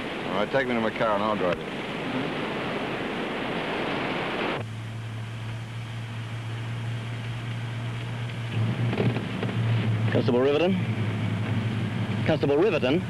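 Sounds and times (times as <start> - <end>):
rushing surf: 0.0 - 4.7
car engine humming: 0.0 - 13.0.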